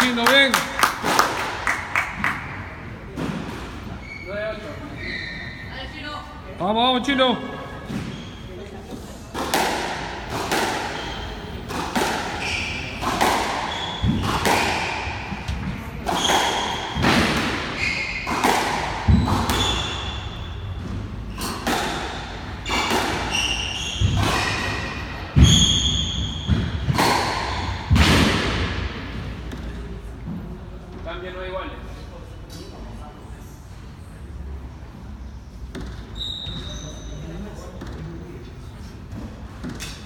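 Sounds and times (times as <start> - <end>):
shoe squeaks: 3.9 - 6.0, 7.7 - 8.6, 10.9 - 11.5, 12.2 - 15.4, 16.1 - 17.0, 17.7 - 18.5, 19.1 - 27.9, 35.8 - 38.0
squash ball hits echoing: 9.3 - 29.9.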